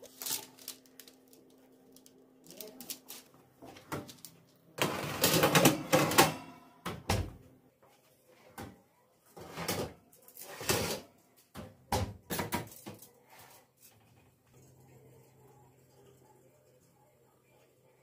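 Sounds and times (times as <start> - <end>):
objects rustling and scraping: 0.0 - 6.3, 9.2 - 11.1.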